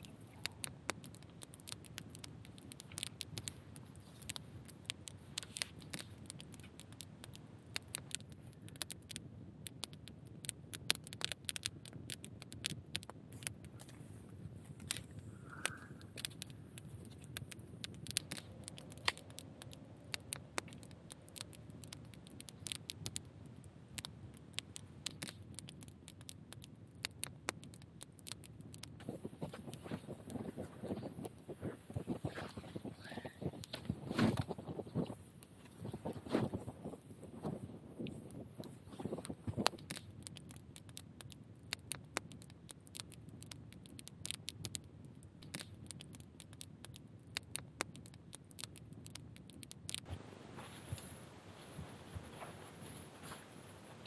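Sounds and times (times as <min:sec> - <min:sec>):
footsteps crunching in snow: 0:50.1 - 0:54.0.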